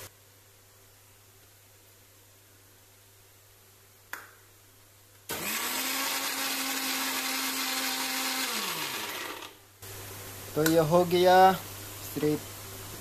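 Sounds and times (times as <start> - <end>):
mixer grinder motor whine: 5.3 - 9.6.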